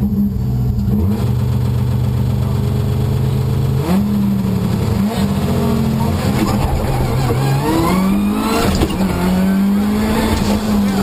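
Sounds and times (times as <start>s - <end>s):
rally car engine idling and revving: 0.0s - 11.0s.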